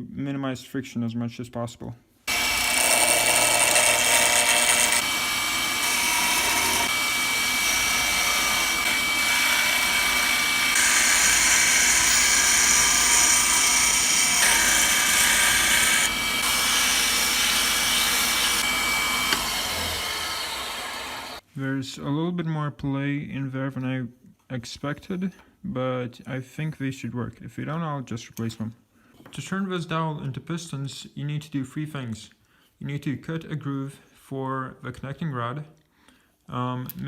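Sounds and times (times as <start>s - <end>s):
electric power tool whining: 2.3s - 21.4s.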